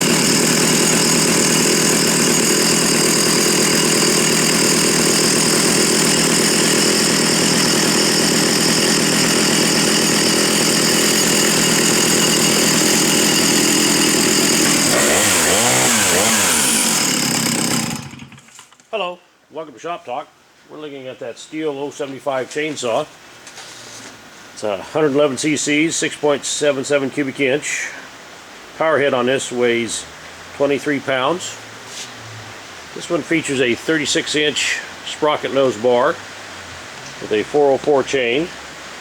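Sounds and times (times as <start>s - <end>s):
chainsaw running: 0.0s - 18.8s.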